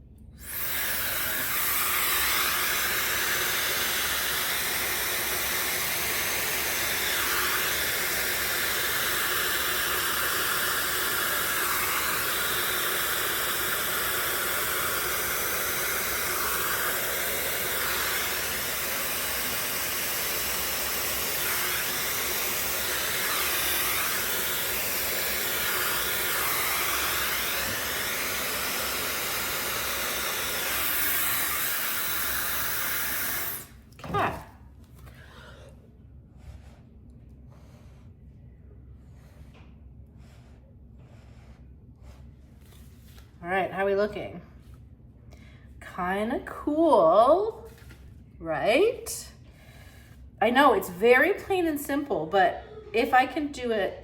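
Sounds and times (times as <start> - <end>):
hair dryer blowing: 0.4 - 35.6, 50.4 - 54.0.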